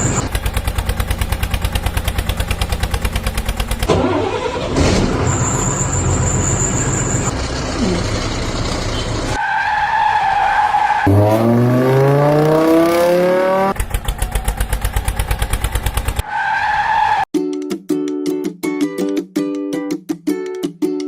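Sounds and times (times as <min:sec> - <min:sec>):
tyre screech: 0:03.9 - 0:07.3
engine revving up: 0:11.0 - 0:16.2.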